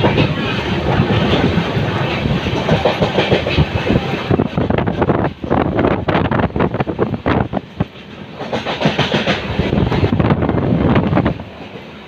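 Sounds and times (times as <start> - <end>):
train wheels clattering on track: 0.0 - 12.0.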